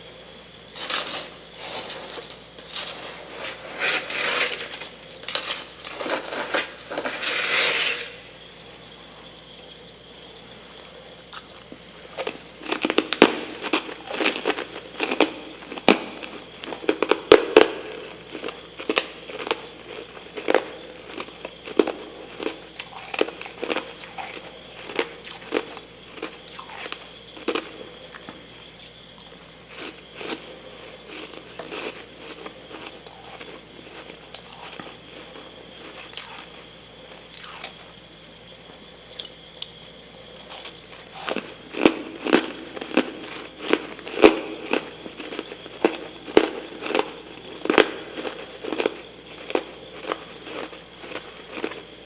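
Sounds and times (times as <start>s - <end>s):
chewing crunchy frost: 0.8s - 8.2s, 18.0s - 36.7s, 37.3s - 37.8s, 40.4s - 51.9s.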